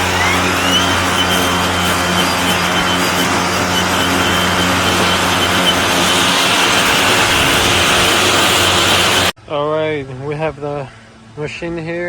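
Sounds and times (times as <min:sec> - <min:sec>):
electric lawn mower whirring: 0:00.0 - 0:09.4.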